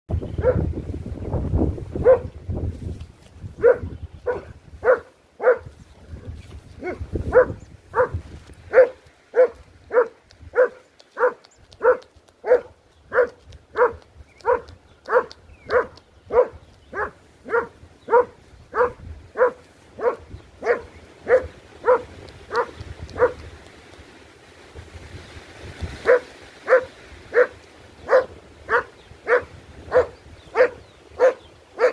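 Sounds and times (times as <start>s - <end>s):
dog barking: 0.4s - 0.7s, 2.0s - 2.3s, 3.6s - 5.7s, 6.8s - 23.4s, 26.0s - 31.9s.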